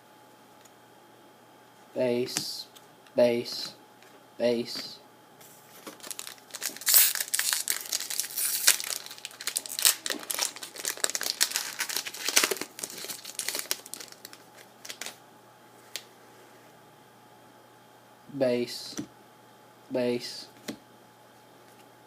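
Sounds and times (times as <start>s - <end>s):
foil wrapper tearing and crinkling: 5.8s - 15.2s.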